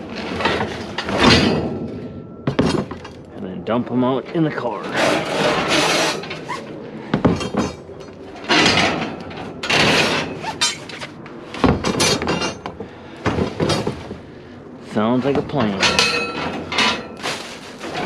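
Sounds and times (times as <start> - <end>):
metal poles clattering and scraping: 0.0 - 3.3, 4.1 - 14.3, 15.2 - 18.0
sharp metal knocks: 0.5 - 3.2, 15.6 - 17.2.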